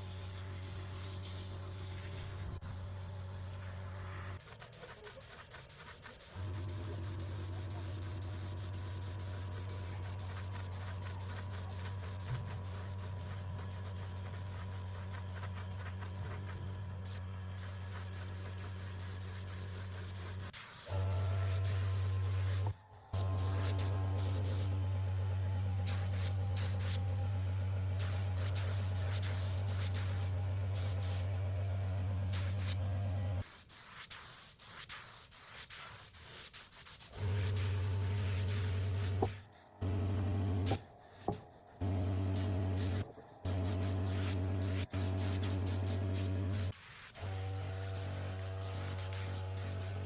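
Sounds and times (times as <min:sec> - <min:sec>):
electric buzz with spray hiss: 0:17.6 - 0:35.4, 0:37.0 - 0:50.0.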